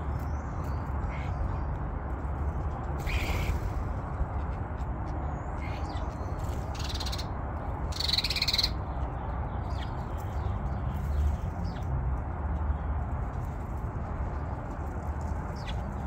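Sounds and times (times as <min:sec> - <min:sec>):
birds calling harshly: 0:03.0 - 0:04.0, 0:05.3 - 0:11.8.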